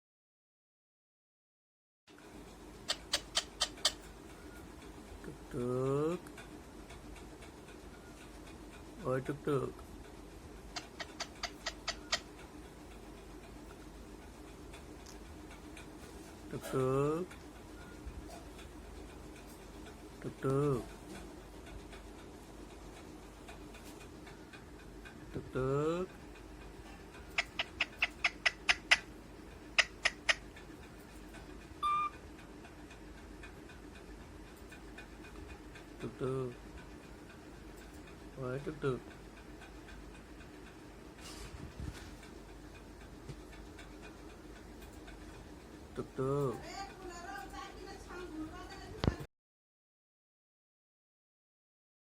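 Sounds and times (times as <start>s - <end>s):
parrot clicking calls: 2.8s - 4.2s, 10.6s - 13.1s, 23.5s - 32.3s
parrot squeaky clicks: 2.9s - 4.0s, 10.8s - 12.3s, 27.4s - 29.1s, 29.8s - 30.4s.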